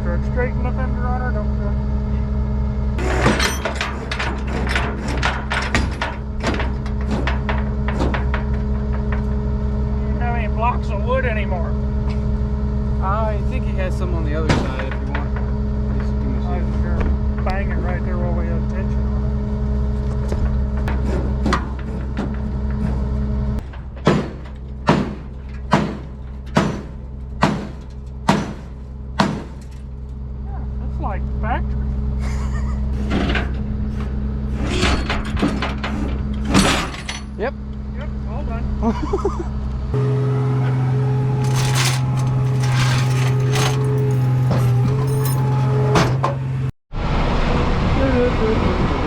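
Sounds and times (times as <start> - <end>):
truck engine idling: 0.0 - 46.7
sheet metal creaking and popping: 3.0 - 9.5, 41.4 - 45.2
hammer banging on steel: 23.6 - 29.7.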